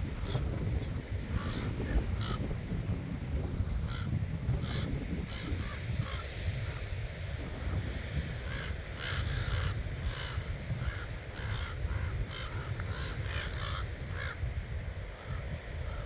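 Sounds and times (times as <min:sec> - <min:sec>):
wind rumble on microphone: 0:00.0 - 0:16.0
crows cawing: 0:00.2 - 0:00.6, 0:01.3 - 0:02.6, 0:03.7 - 0:06.4, 0:08.4 - 0:14.5.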